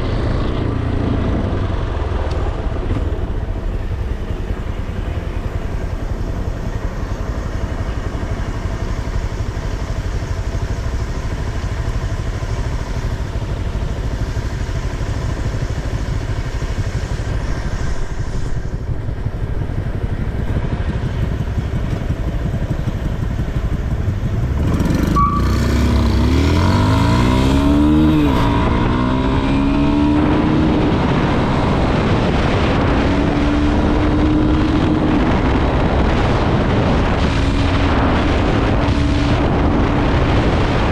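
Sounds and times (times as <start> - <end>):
motorcycle engine: 0.0 - 40.9
wind noise: 0.0 - 40.9.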